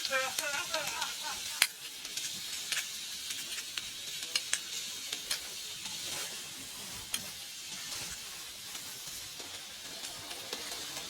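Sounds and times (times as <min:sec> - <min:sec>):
sizzling hiss: 0:00.0 - 0:11.0
wood fire crackling: 0:00.0 - 0:11.0.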